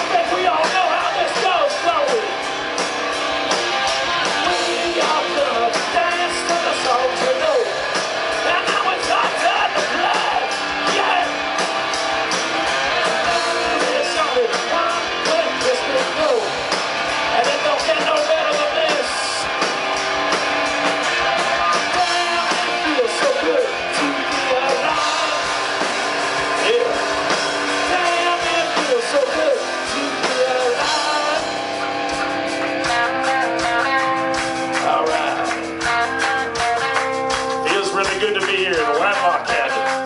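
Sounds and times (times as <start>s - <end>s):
person singing: 0.0s - 2.4s, 4.5s - 7.8s, 8.4s - 11.4s, 12.9s - 16.6s, 17.3s - 19.5s, 21.6s - 25.5s, 26.6s - 27.1s, 27.8s - 31.7s, 37.6s - 40.0s
electric guitar: 0.0s - 40.0s
steady drum beat: 0.0s - 40.0s.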